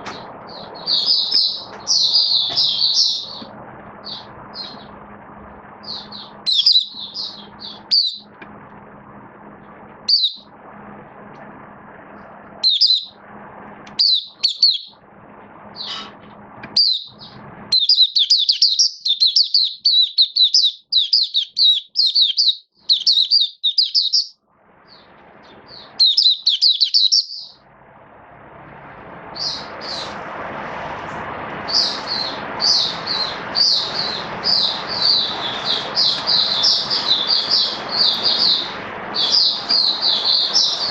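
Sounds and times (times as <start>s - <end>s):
bird twittering chirps: 0.0s - 5.0s, 5.8s - 8.4s, 10.0s - 10.5s, 12.6s - 13.2s, 13.9s - 15.0s, 15.8s - 27.6s, 29.3s - 30.2s, 31.7s - 40.9s.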